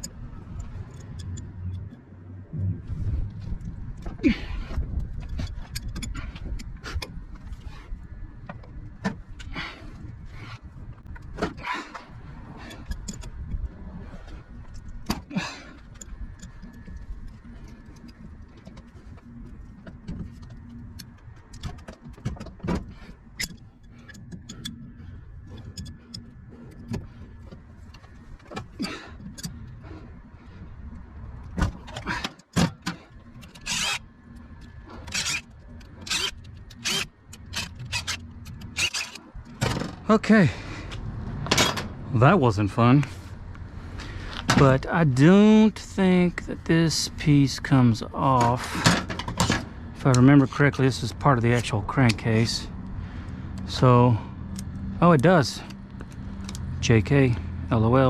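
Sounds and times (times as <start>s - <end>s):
steady low rumble: 0.0s - 58.0s
metal parts clinking and knocking: 31.8s - 40.0s.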